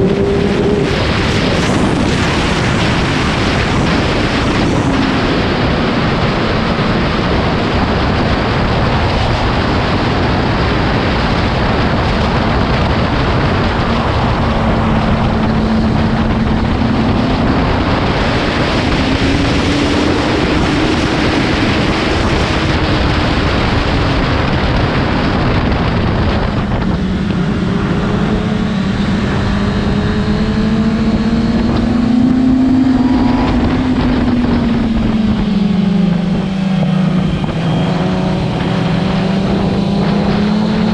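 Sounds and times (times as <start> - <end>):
motorcycle engine: 0.0 - 40.9
wind rush over microphone: 0.0 - 40.9.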